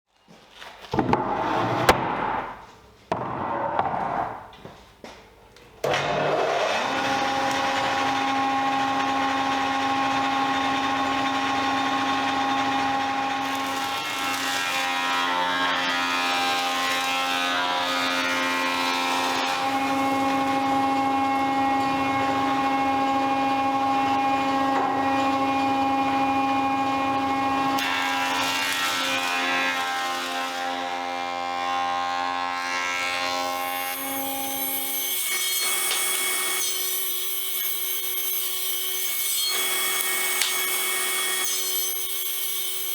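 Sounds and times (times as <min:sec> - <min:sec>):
electric power tool running: 0:33.5 - 0:42.9.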